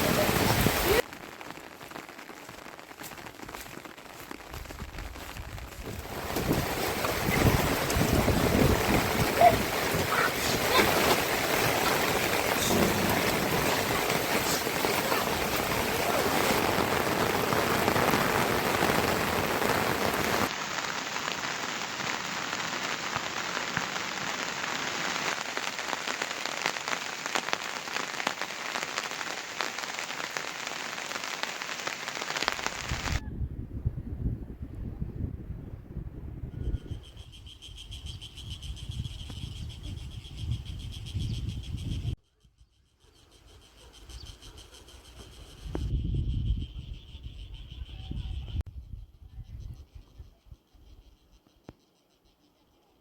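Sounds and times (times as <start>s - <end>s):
raindrops ticking: 0.0s - 33.2s
steady rain falling: 0.0s - 33.2s.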